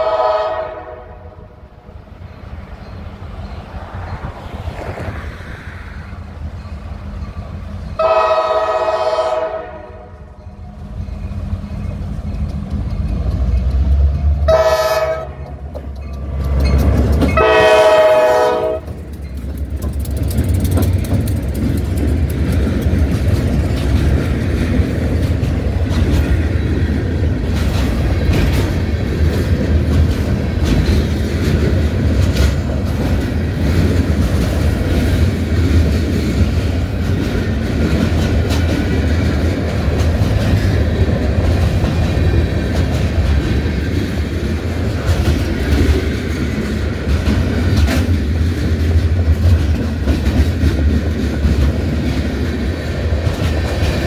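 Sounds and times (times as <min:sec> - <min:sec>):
train horn blasts: 0:00.0 - 0:01.7, 0:08.0 - 0:10.4, 0:14.4 - 0:15.7, 0:17.3 - 0:19.0
diesel locomotives passing: 0:00.0 - 0:54.0
wheels clattering over rails: 0:10.8 - 0:54.0.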